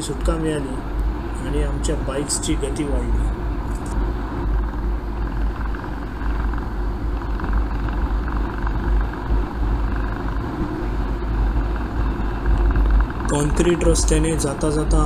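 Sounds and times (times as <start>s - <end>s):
low wind rumble on microphone: 2.9s - 15.0s.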